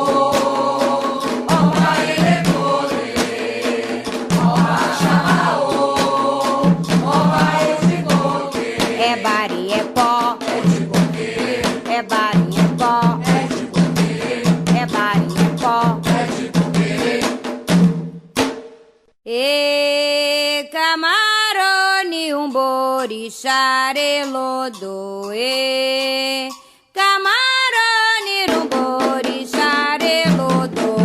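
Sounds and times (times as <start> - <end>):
voices chanting in chorus: 0.0 - 17.4
fast hand drumming: 0.0 - 18.6, 28.2 - 31.0.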